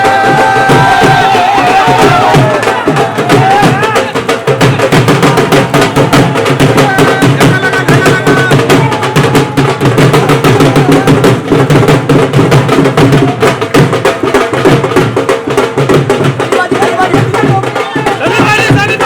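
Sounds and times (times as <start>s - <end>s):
loud music with fast drumming: 0.0s - 19.0s.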